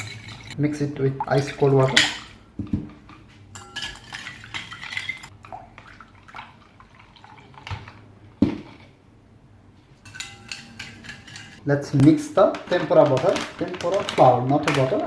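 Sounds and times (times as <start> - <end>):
utensil clinking against bowl: 0.0 - 0.6, 1.3 - 5.3, 10.0 - 11.6
stirring liquid in a bowl: 0.0 - 9.0, 10.0 - 11.7.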